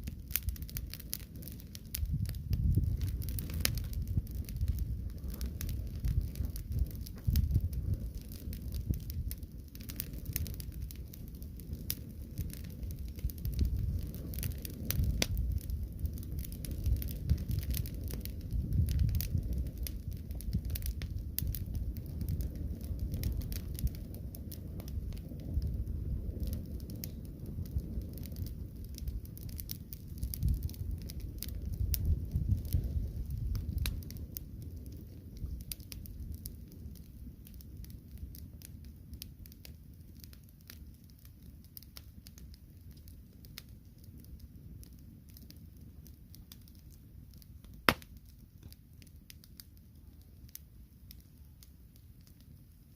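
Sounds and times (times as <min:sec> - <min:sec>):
fire crackling: 0:00.0 - 0:52.9
loud pop: 0:47.9 - 0:48.1.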